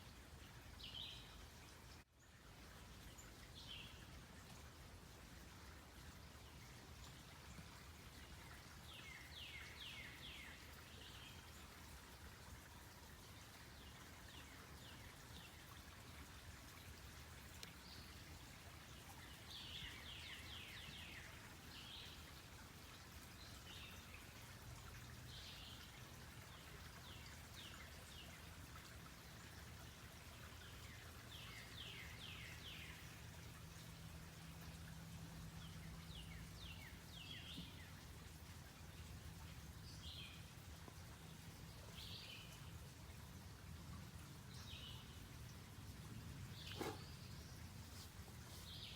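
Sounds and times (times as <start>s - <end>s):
faint scattered bird calls: 0.1s - 48.9s.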